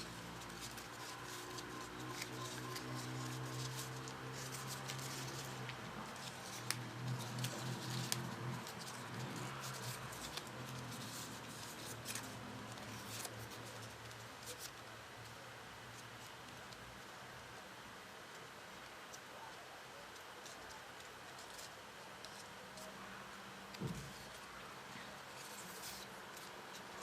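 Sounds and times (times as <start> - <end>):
paper rustling and clicking: 0.0 - 15.4, 23.7 - 27.0.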